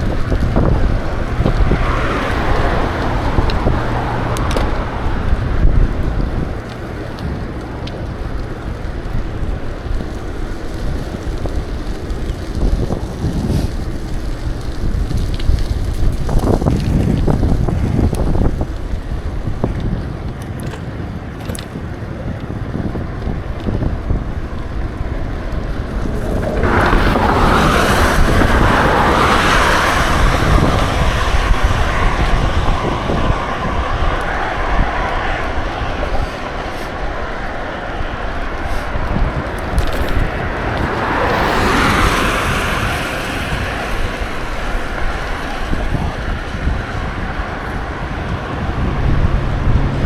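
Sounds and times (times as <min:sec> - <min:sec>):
hissing rush: 0:00.0 - 0:19.7, 0:23.8 - 0:50.0
wind buffeting microphone: 0:00.0 - 0:50.0.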